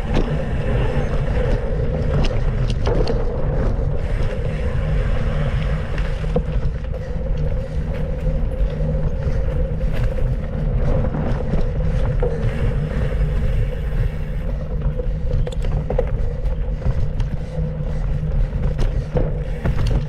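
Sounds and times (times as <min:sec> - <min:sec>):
bike knocks and rattles: 0:00.0 - 0:20.0
bike tyres rumbling on trail: 0:00.0 - 0:20.0
wind on microphone: 0:00.0 - 0:20.0.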